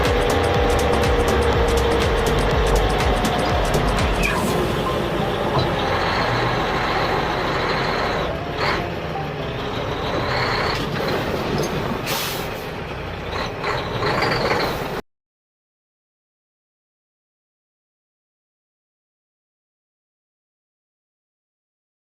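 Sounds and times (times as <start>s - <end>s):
heavy truck engine running: 0.0s - 15.0s
air brake hissing: 4.1s - 8.1s, 12.0s - 12.9s.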